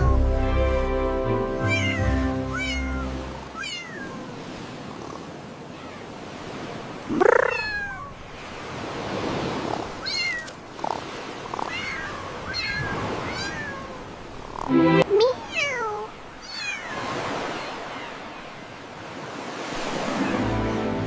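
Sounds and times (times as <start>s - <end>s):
cats meowing: 1.7s - 4.2s, 7.1s - 8.2s, 11.6s - 14.0s, 15.3s - 17.1s.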